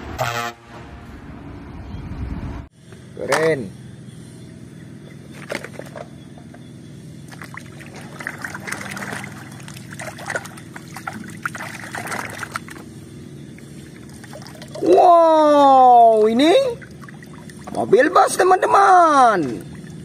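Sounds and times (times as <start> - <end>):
hand splashing in water basin: 7.3 - 12.8.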